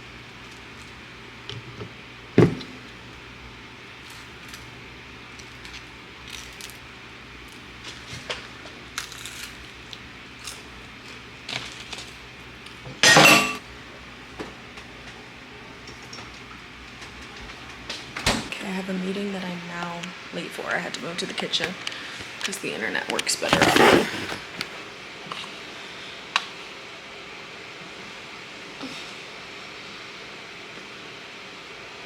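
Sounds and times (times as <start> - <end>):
dishes and cutlery clinking: 13.0 - 13.6
dishes clattering: 13.0 - 13.6.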